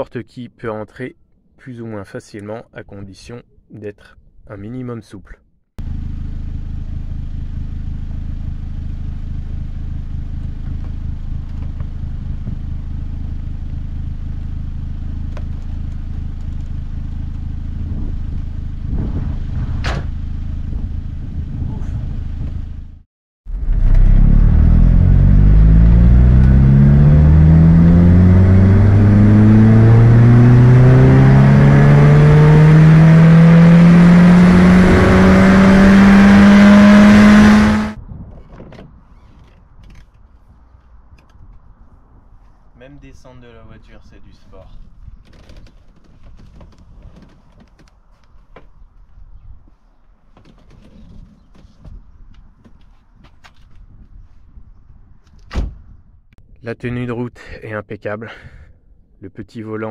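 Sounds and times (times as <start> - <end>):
car engine idling: 5.8 - 18.8
car engine revving up: 23.5 - 38.0.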